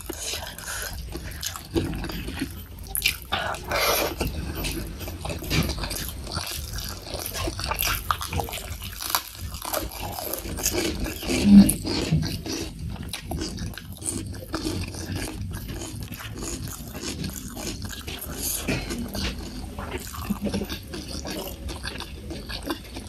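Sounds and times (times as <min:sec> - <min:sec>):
wet chewing and lip-smacking: 0:00.0 - 0:23.0
short throat hum: 0:18.2 - 0:21.5.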